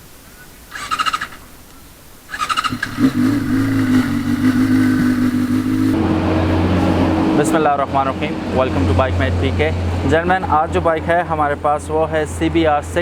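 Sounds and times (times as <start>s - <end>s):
motorcycle starter cranking: 0.7s - 1.5s, 2.3s - 6.0s
motorcycle engine idling: 2.3s - 6.0s.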